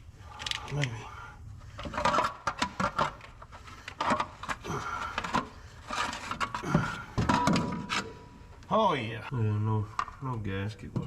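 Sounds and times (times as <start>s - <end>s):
metal clanks and knocks: 1.8s - 8.3s.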